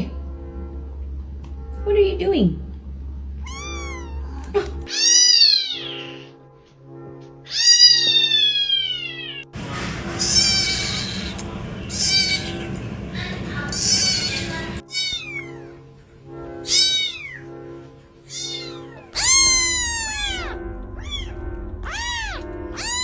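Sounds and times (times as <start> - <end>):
background music: 0.0 - 23.0
cat meowing: 3.4 - 6.3, 7.5 - 15.9, 16.5 - 23.0.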